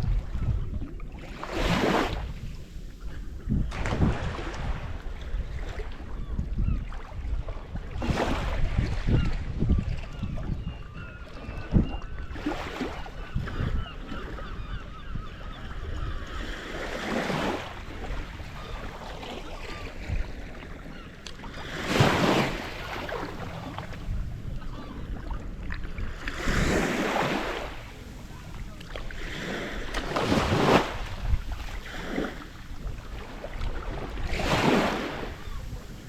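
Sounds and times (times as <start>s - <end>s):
water noise: 0.0s - 36.0s
wind rumbling on microphone: 0.0s - 36.0s
birds calling: 10.1s - 31.0s.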